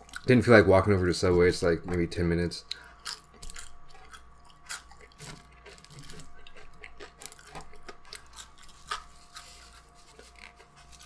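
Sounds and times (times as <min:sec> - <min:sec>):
person chewing crunchy food: 0:00.0 - 0:00.4, 0:02.6 - 0:11.0
faint steady hum: 0:00.0 - 0:11.0.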